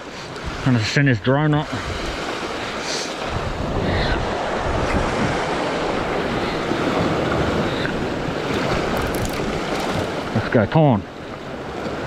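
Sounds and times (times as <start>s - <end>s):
ocean waves washing against rocks: 0.4s - 12.0s
wind buffeting microphone: 3.2s - 10.6s.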